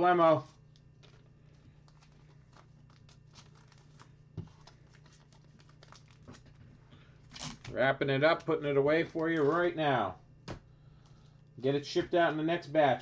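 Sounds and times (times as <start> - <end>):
low steady hum: 0.0 - 13.0
card crinkling and clicking: 0.5 - 9.8.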